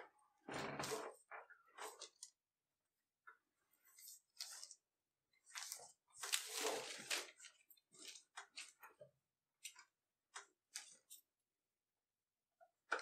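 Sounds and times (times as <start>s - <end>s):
coat rustling on newspaper: 5.4s - 8.2s.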